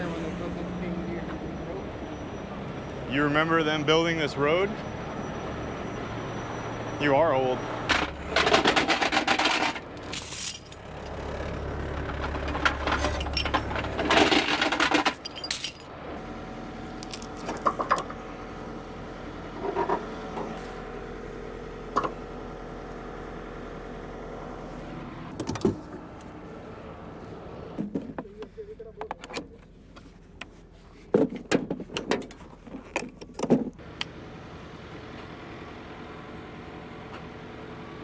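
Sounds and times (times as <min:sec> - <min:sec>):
low engine hum: 0:00.0 - 0:31.1
metallic clinks and rattles: 0:07.9 - 0:11.2, 0:12.1 - 0:15.9, 0:17.0 - 0:18.1.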